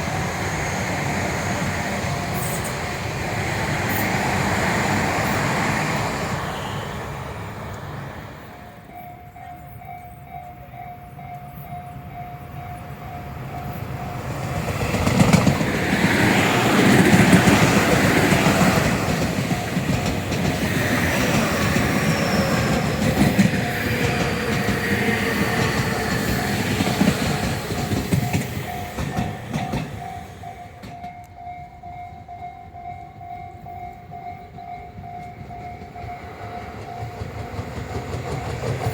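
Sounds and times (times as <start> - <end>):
electric train passing: 0.0 - 38.9
wheels clattering over rail joints: 14.4 - 31.3.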